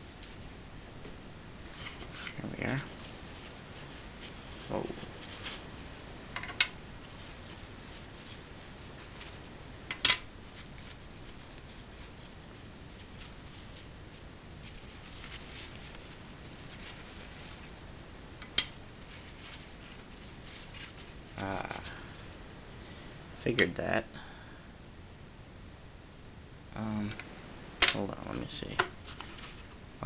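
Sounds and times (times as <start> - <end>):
packaging rustling: 1.7 - 6.1, 10.2 - 17.8, 19.0 - 22.2, 29.0 - 29.8.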